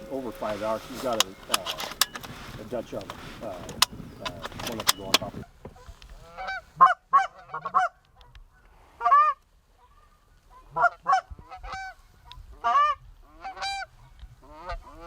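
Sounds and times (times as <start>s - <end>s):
goose honking: 0.0s - 5.4s, 12.6s - 15.0s.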